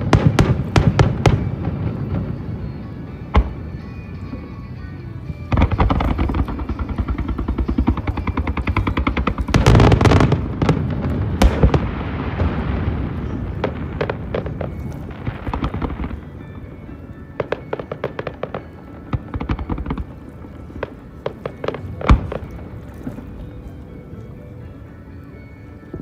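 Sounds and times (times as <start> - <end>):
fireworks popping and crackling: 0.0 - 24.2.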